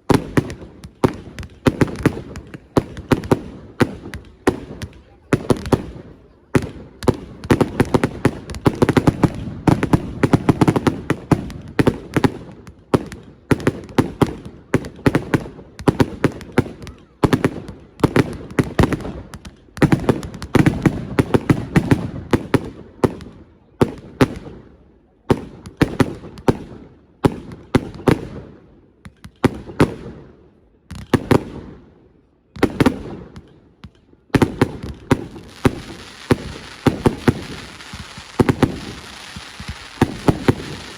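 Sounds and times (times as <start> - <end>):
fireworks crackling: 0.0 - 23.2, 32.6 - 40.9
fireworks bangs: 0.0 - 30.2, 32.6 - 40.9.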